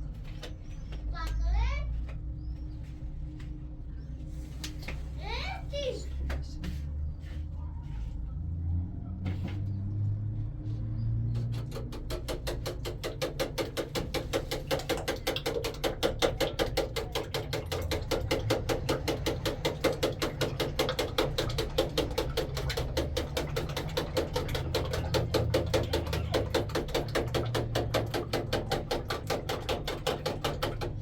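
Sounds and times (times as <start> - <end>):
fork beating eggs in bowl: 11.5 - 31.0.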